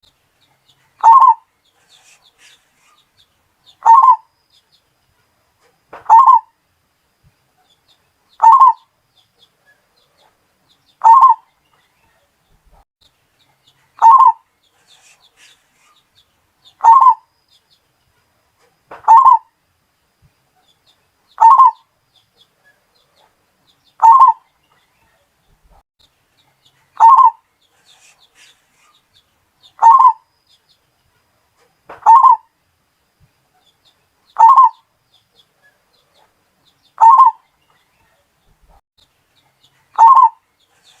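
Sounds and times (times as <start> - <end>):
dove cooing: 1.0 - 2.5, 3.8 - 4.2, 6.1 - 6.5, 8.4 - 8.8, 11.0 - 11.4, 14.0 - 14.4, 16.8 - 17.2, 19.0 - 19.5, 21.4 - 21.8, 24.0 - 24.4, 27.0 - 27.4, 29.8 - 30.2, 32.0 - 32.4, 34.4 - 34.8, 37.0 - 37.4, 40.0 - 41.0.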